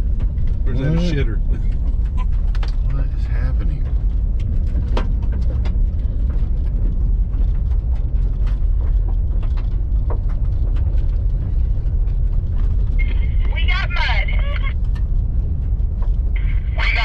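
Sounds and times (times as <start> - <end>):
car rattles and knocks: 0.0 - 13.0
car rumbling on dirt trail: 0.0 - 17.0.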